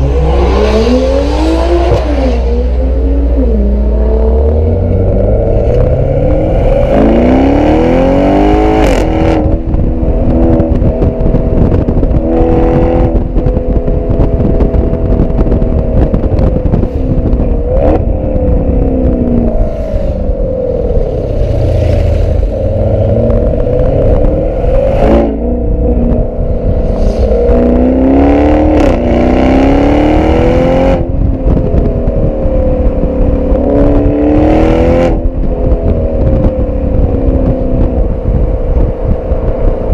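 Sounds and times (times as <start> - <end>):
exhaust cracks: 0.0 - 30.0
car engine revving: 0.0 - 39.9.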